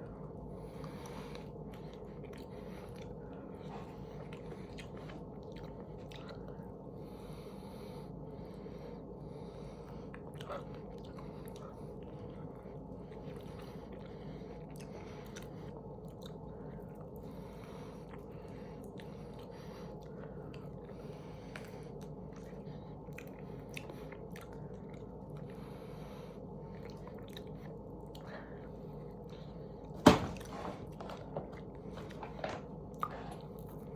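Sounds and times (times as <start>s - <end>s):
steady low hum: 0.0s - 33.9s
person chewing chicken wings: 0.8s - 6.8s, 9.8s - 17.3s, 18.0s - 25.6s, 26.7s - 28.4s.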